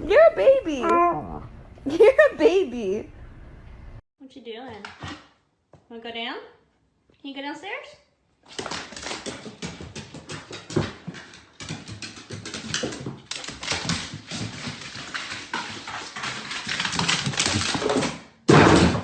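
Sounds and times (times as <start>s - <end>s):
dog whimpering: 0.7s - 1.5s.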